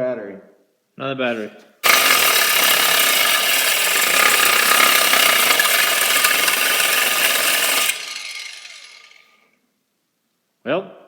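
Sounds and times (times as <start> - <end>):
cordless power tool grinding: 1.8 - 9.3.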